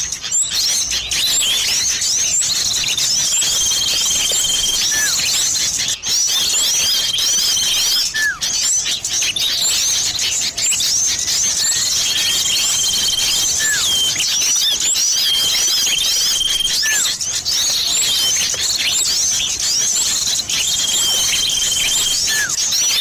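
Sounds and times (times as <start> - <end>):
buzzy bird trill: 0.0 - 23.0
small birds chirping: 0.0 - 23.0.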